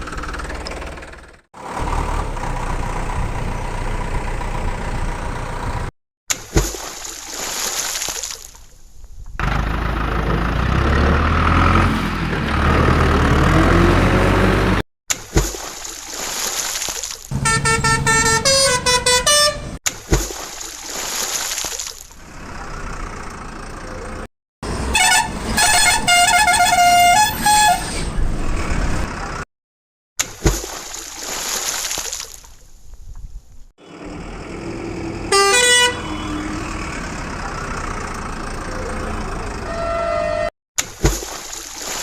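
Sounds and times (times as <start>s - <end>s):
low engine rumble: 0.0s - 5.9s
horns playing a tune: 17.3s - 19.8s, 24.9s - 27.8s, 35.3s - 36.5s.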